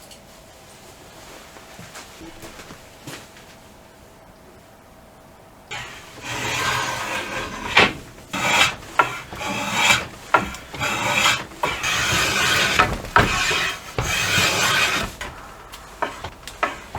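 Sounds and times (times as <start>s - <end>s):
sharp knocks: 5.7s - 16.9s
tool scraping wood: 5.7s - 16.9s.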